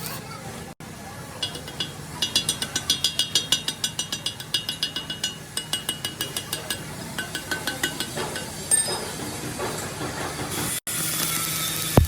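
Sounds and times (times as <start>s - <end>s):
hammer strikes ringing on steel: 1.4s - 9.3s.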